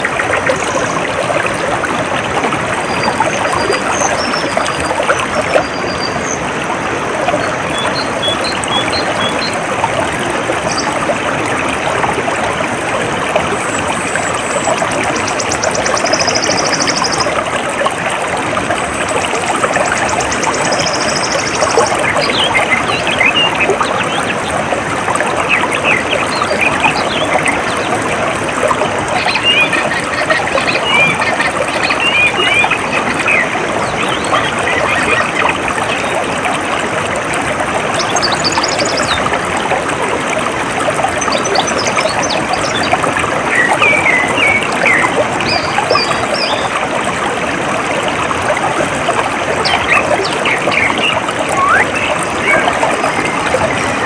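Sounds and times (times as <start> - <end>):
water trickling and flowing: 0.0 - 54.0
bird chirps: 49.7 - 53.3.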